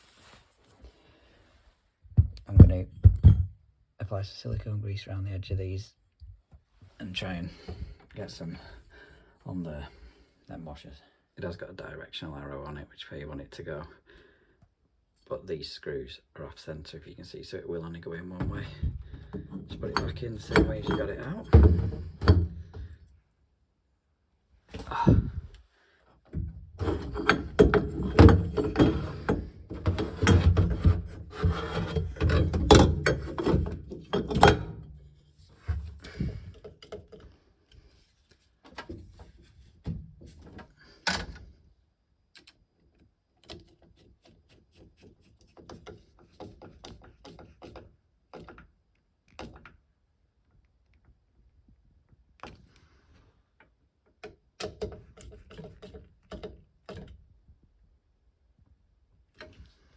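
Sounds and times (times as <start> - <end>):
tools rubbing and knocking: 18.4 - 23.0, 26.3 - 37.3, 43.4 - 48.6, 54.6 - 57.1
tools clicking and tapping: 26.3 - 34.8.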